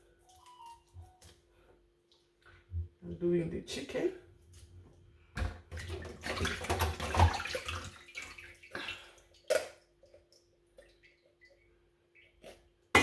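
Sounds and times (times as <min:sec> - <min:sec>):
water splashing from a tap: 0:05.4 - 0:11.6.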